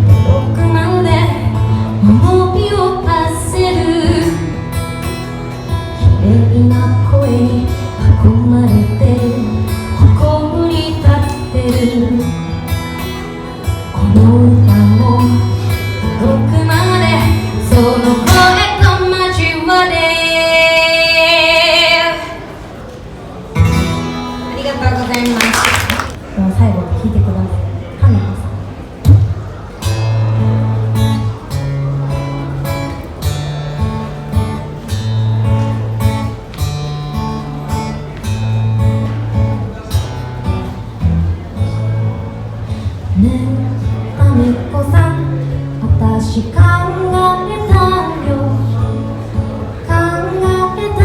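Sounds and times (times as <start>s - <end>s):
woman singing: 0.0s - 4.6s, 6.0s - 12.4s, 14.0s - 22.4s, 43.2s - 49.1s, 49.9s - 51.0s
acoustic guitar strumming: 0.0s - 22.2s, 23.5s - 25.1s, 28.6s - 51.0s.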